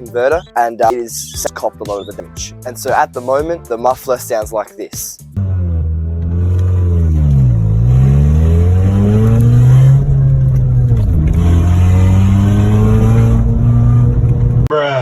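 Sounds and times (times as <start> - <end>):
car engine revving: 5.3 - 14.7.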